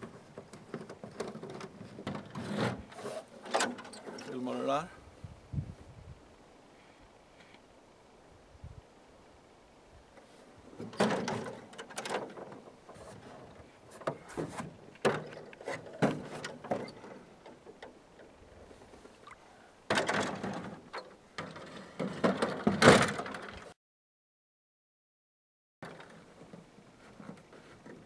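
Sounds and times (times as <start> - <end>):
rattling and rubbing: 0.1 - 4.4.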